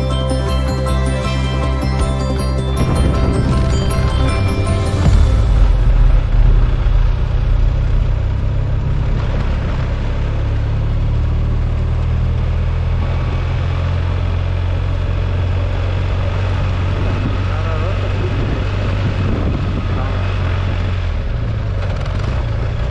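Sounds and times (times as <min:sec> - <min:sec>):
road noise: 0:00.0 - 0:22.9
wind noise: 0:15.0 - 0:21.5.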